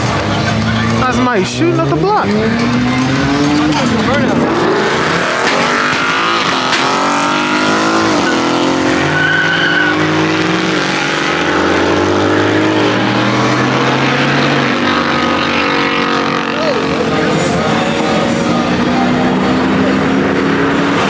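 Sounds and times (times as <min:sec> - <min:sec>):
car engine revving: 0:00.0 - 0:21.0
tyres squealing: 0:00.8 - 0:11.5
sharp pops: 0:05.4 - 0:07.2.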